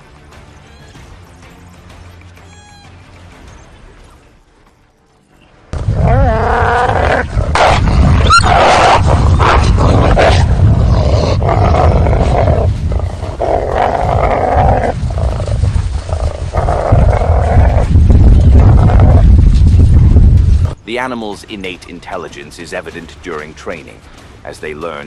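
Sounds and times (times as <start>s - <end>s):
wolves growling and snarling: 5.8s - 19.4s
wolf whining call: 8.2s - 9.5s.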